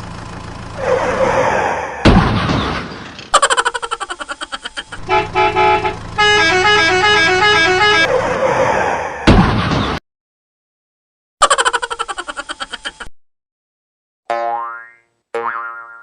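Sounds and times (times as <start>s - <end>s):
vehicle horn honks: 5.0s - 8.1s
horn playing a quick tune: 5.1s - 8.1s.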